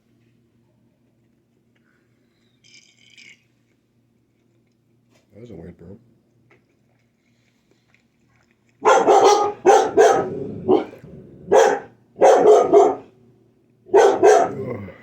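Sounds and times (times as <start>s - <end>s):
dog barking loudly: 8.8s - 13.2s, 13.9s - 14.8s.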